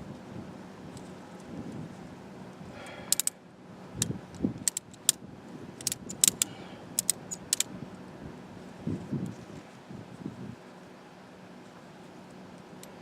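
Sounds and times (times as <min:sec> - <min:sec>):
light wind noise: 0:00.0 - 0:13.0
sharp metallic clicks: 0:03.1 - 0:03.4, 0:04.0 - 0:05.2, 0:05.8 - 0:07.7.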